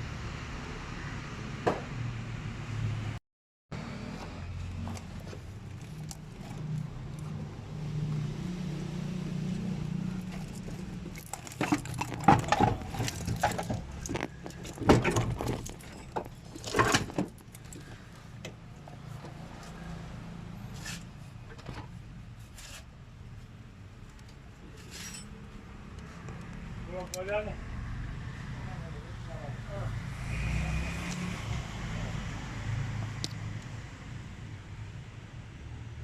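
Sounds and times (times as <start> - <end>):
metal tools clinking: 24.8 - 25.4.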